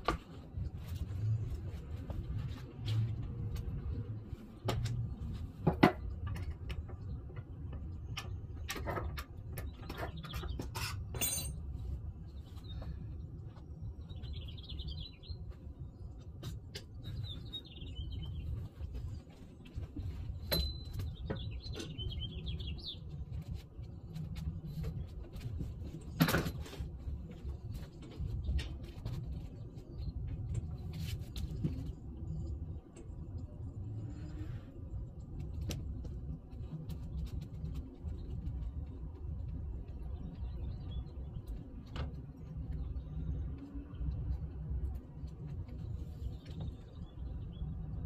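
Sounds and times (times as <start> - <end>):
steady low rumble: 0.0 - 8.7, 11.6 - 48.0
small birds chirping: 9.4 - 10.8, 12.1 - 48.0.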